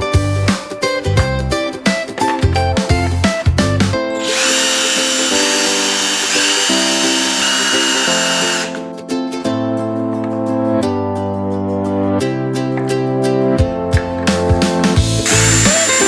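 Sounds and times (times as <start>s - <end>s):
guitar background music: 0.0s - 16.0s
small electric motor whirring: 4.2s - 8.8s, 15.3s - 16.0s.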